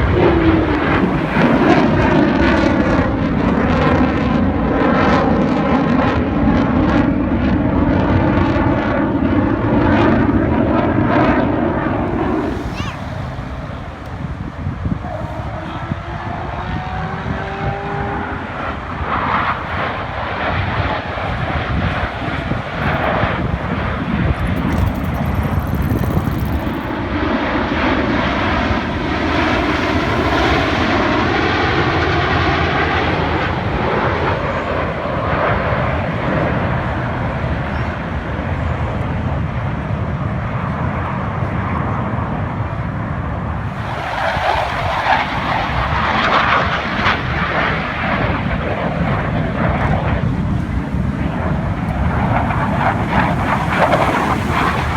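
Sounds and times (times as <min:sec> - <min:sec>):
aircraft flying past: 0:00.0 - 0:54.9.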